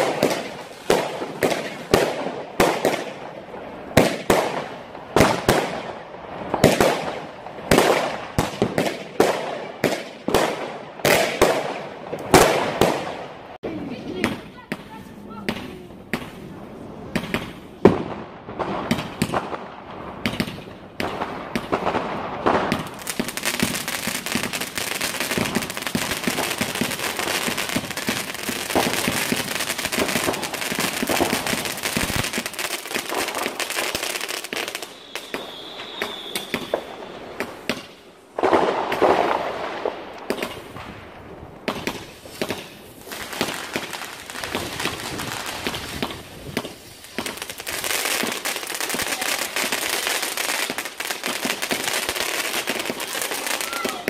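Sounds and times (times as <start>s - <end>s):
fireworks crackling and popping: 0.0s - 54.0s
firework whistle: 33.9s - 37.5s.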